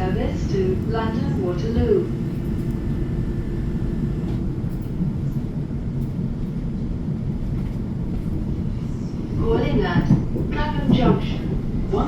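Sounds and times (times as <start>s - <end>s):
train carriage rumble: 0.0s - 12.0s.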